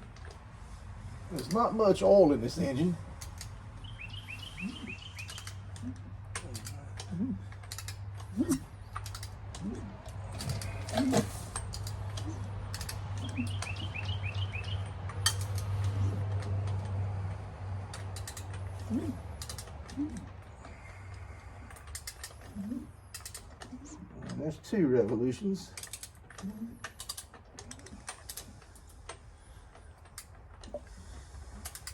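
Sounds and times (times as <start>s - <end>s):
steady low hum: 0.0s - 31.9s
ratchet clicking: 2.5s - 20.2s, 25.7s - 29.2s
bird chirping: 3.8s - 6.7s, 12.1s - 16.2s.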